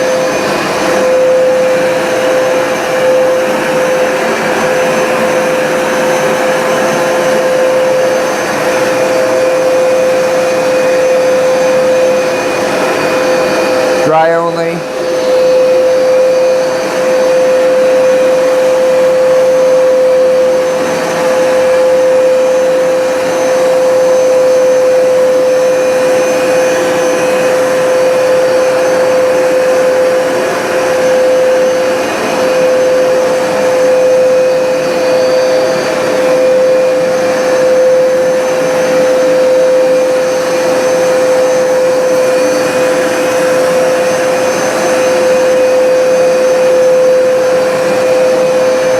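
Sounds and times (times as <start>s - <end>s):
carpet cleaner suction motor drone: 0.0s - 48.9s.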